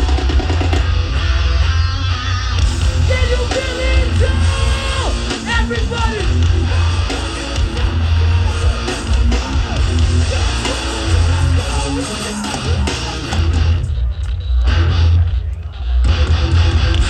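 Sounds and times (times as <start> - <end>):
distorted guitar and bass: 0.0 - 17.0
person yelling vocals: 3.0 - 6.4.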